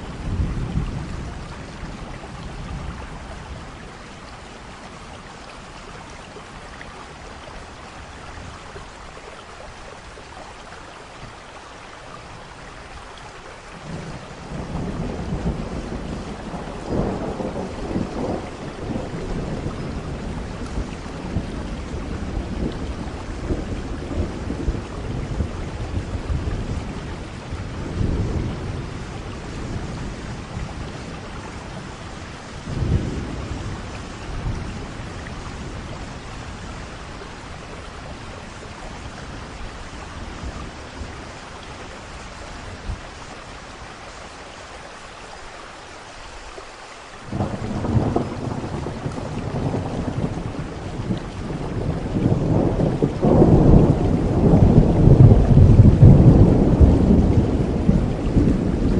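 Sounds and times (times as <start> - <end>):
rolling thunder rumbles: 0.0 - 5.2, 13.8 - 43.4, 47.3 - 58.9
steady rain hiss: 0.0 - 58.9.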